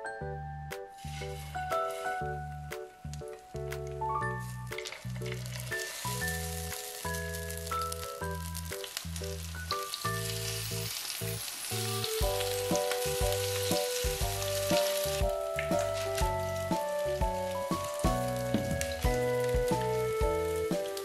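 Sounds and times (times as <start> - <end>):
food sizzling in oil: 1.0 - 21.0
background music with bass line: 11.9 - 21.0.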